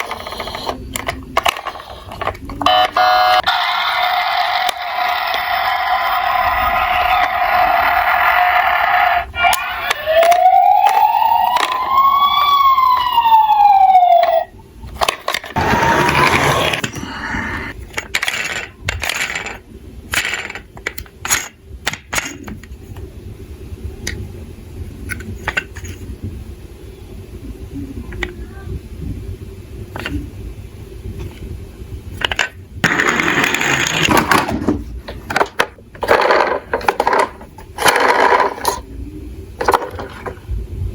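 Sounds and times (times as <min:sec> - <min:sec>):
toy electronic siren wail: 0:02.6 - 0:14.6, 0:15.6 - 0:17.7
toy cars rattling and clicking: 0:15.0 - 0:22.4, 0:35.3 - 0:38.8.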